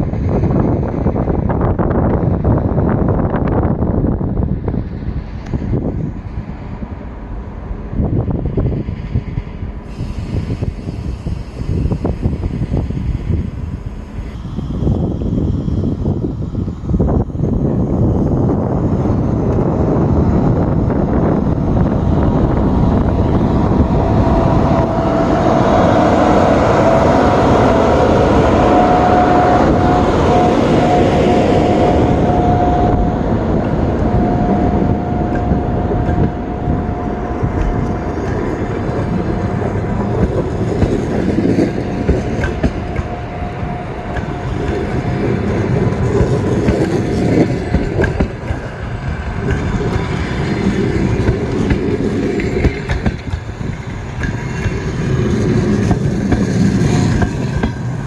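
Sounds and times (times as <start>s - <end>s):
train wheels rumbling on rails: 0.0s - 58.0s
high whine: 9.6s - 58.0s.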